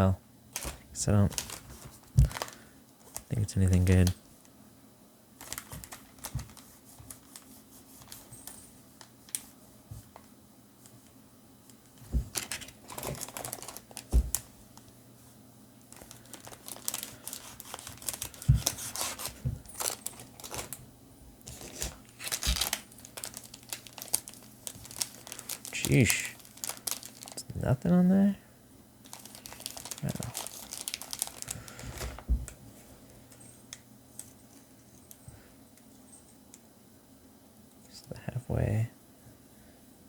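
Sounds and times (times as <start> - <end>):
foil wrappers crinkling: 0.5 - 4.2, 5.4 - 10.2, 11.7 - 14.9, 15.9 - 20.8, 21.4 - 27.6, 29.0 - 32.3
light knocks of packs set down: 11.9 - 14.5.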